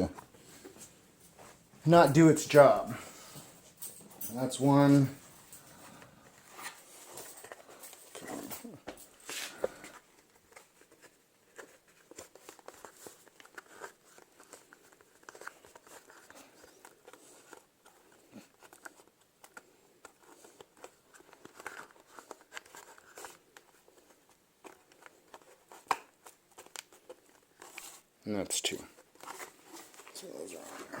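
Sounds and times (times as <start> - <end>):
rubber and plastic rubbing: 6.3 - 28.1, 28.7 - 31.0.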